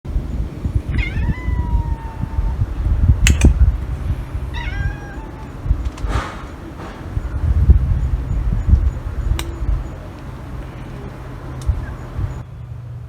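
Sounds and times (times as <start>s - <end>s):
steady low rumble: 0.1s - 13.0s
cat meowing: 0.9s - 7.3s
sharp clicks: 3.2s - 3.6s, 5.4s - 7.1s, 9.3s - 10.3s, 11.6s - 11.8s.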